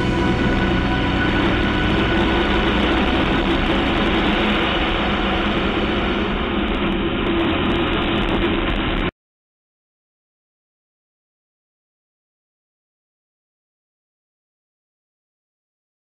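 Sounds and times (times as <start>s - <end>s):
road noise: 0.0s - 9.1s
wind noise: 0.0s - 9.1s.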